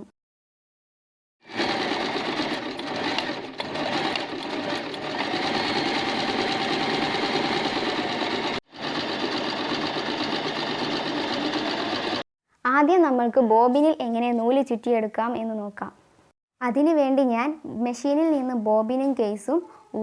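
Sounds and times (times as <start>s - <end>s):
electric sewing machine running: 1.4s - 12.2s.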